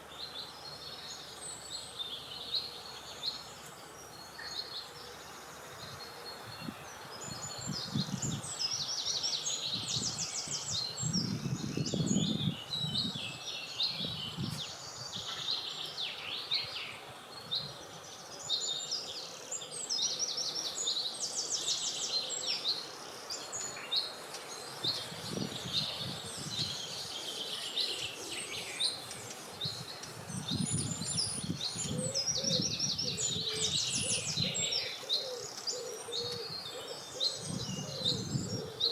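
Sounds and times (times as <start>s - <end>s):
songbirds singing: 0.0s - 38.9s
wind gusts rumbling: 9.7s - 15.3s, 24.8s - 27.0s.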